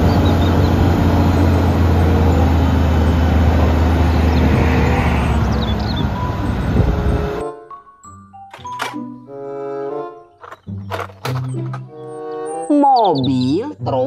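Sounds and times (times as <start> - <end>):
hydraulics working: 0.0 - 7.4
diesel engine running: 0.0 - 7.5.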